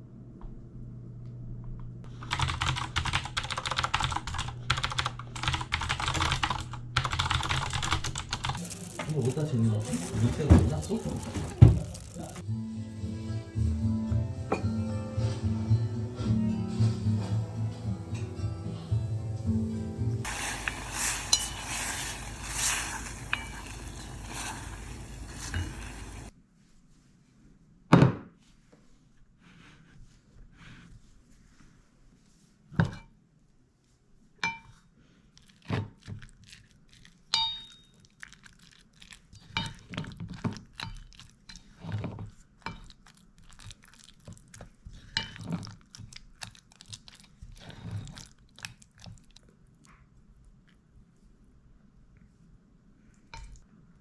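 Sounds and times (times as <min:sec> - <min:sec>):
low steady hum: 0:00.0 - 0:02.2, 0:20.2 - 0:26.3
dishes and utensils clinking: 0:14.5 - 0:14.9, 0:20.3 - 0:26.3
steady hiss: 0:20.3 - 0:26.3.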